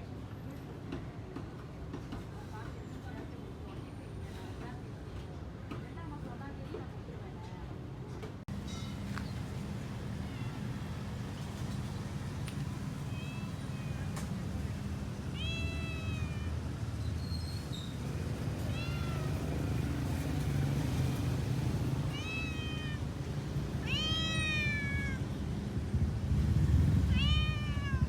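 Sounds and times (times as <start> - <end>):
cat meowing: 10.2 - 10.7, 13.0 - 14.3, 15.3 - 16.8, 18.6 - 19.8, 22.0 - 23.1, 23.8 - 25.4, 27.1 - 28.0.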